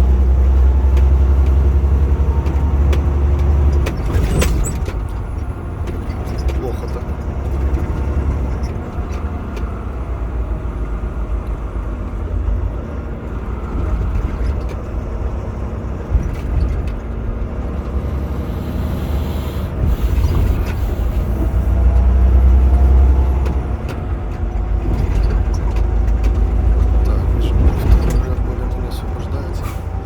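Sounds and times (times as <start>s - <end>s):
truck engine and road rumble: 0.0s - 30.0s
hiss: 18.3s - 21.2s.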